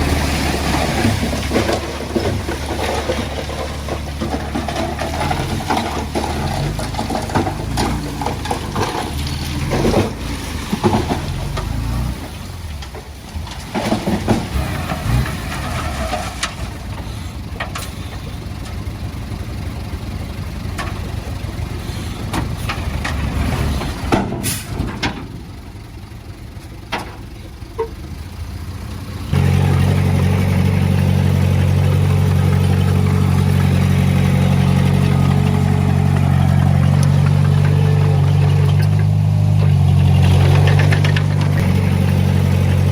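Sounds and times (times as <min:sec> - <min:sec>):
diesel heavy equipment engines: 0:00.0 - 0:42.9
clanks and knocks: 0:00.7 - 0:11.8, 0:22.3 - 0:25.5, 0:26.8 - 0:28.0, 0:29.3 - 0:42.9.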